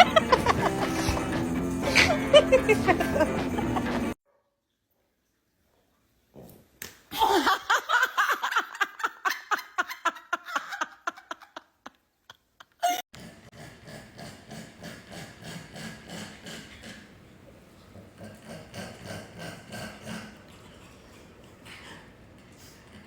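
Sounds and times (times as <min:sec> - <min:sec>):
person laughing hard: 0:00.0 - 0:04.2, 0:07.1 - 0:12.0, 0:12.6 - 0:13.0.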